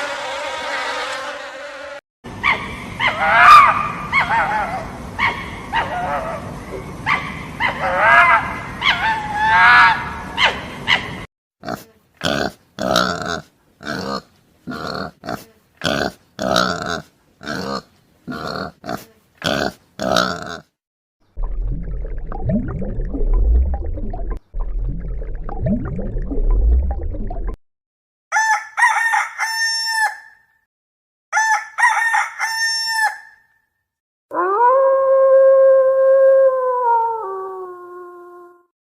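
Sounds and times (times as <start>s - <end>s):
rooster crowing: 28.3s - 30.4s, 31.4s - 33.4s.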